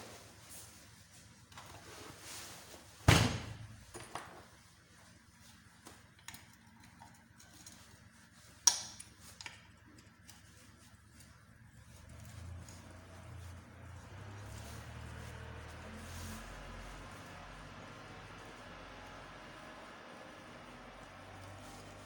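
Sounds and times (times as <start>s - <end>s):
tools clicking and tapping: 5.8s - 7.9s, 8.6s - 10.5s.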